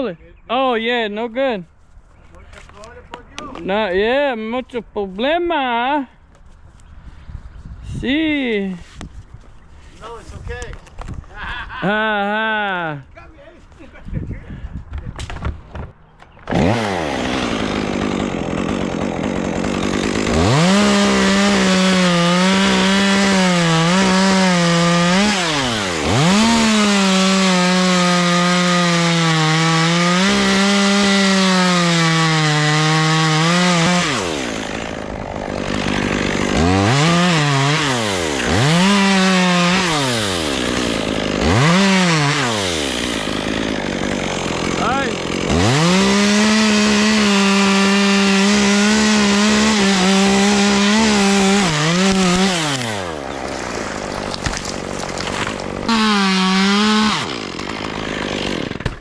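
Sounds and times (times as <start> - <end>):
chainsaw cutting wood: 15.2 - 59.0.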